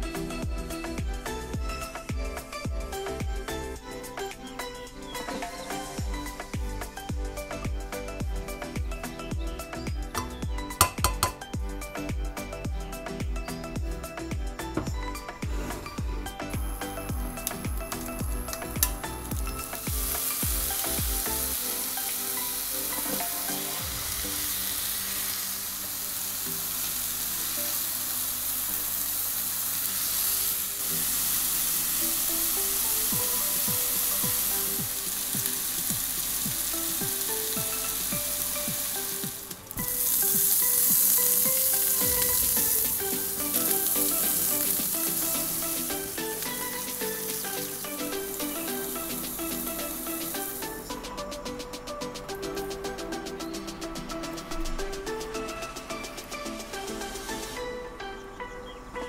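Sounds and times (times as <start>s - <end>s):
meat frying in hot oil: 16.6s - 50.8s.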